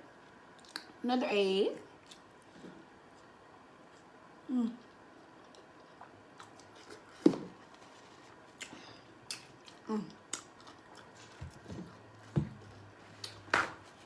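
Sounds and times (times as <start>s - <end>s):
person chewing with mouth smacks: 0.5s - 0.9s, 4.8s - 7.1s, 8.5s - 11.6s.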